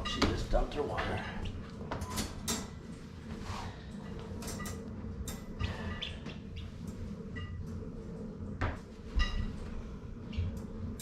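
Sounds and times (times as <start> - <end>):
steady low hum: 0.0 - 11.0
poultry chirping: 5.6 - 6.9.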